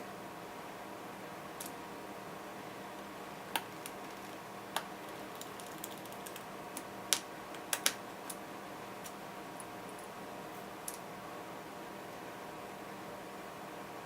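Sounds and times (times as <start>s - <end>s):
faint steady hum: 0.0s - 14.0s
small parts clicking: 5.0s - 8.4s.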